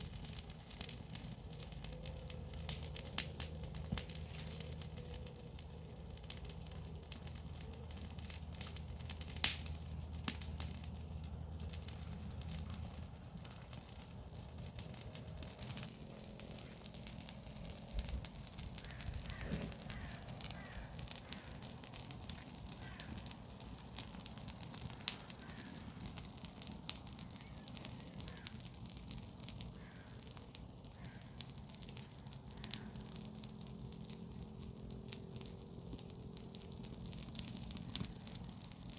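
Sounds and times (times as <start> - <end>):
fire crackling and popping: 0.0 - 38.9
bird calling: 18.8 - 21.6.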